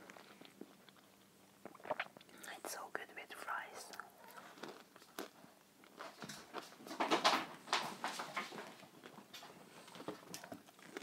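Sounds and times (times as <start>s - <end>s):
chewing fries mouth clicks: 0.0s - 2.5s, 3.9s - 6.8s, 9.0s - 11.0s.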